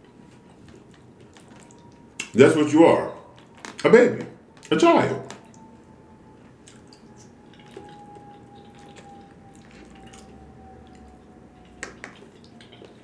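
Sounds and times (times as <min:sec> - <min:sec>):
person chewing with wet smacks: 0:00.0 - 0:02.4, 0:05.3 - 0:13.0.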